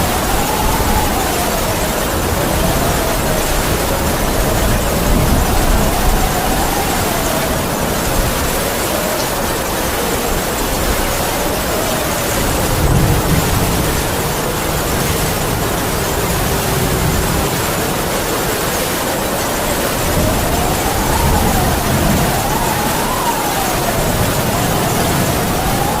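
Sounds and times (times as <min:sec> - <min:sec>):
heavy rain falling: 0:00.0 - 0:26.0
howling wind: 0:00.0 - 0:26.0.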